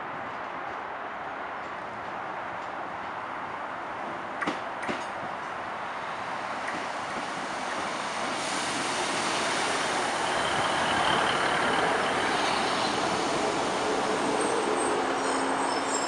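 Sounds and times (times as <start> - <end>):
train wheels on rails: 0.0 - 16.0
diesel train engine: 4.9 - 16.0
faint high squeal: 14.8 - 16.0.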